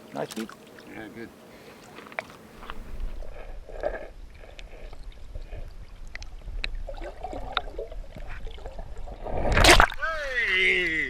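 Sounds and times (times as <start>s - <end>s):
faint water sounds: 0.0s - 11.0s
wind rumble on microphone: 2.6s - 10.0s.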